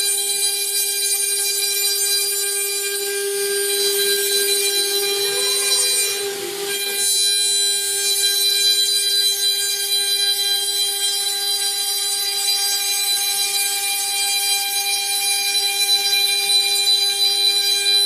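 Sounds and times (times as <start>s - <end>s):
machine spindle whining: 0.0s - 12.9s.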